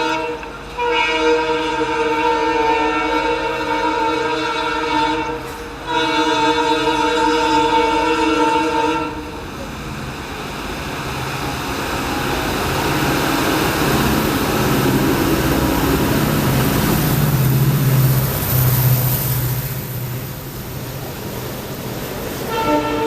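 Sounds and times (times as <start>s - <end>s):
train horn chord: 0.0s - 9.4s, 22.5s - 23.0s
locomotive engine and train rumble: 0.0s - 23.0s.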